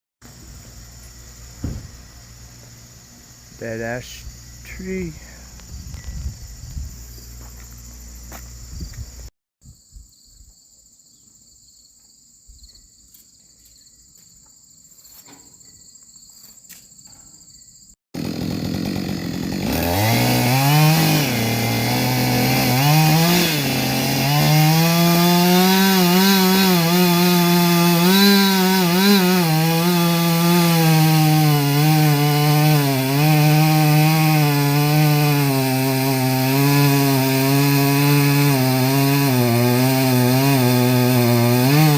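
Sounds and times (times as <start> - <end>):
high insect drone: 0.2 - 18.0
chainsaw cutting wood: 0.5 - 6.0, 18.2 - 41.9.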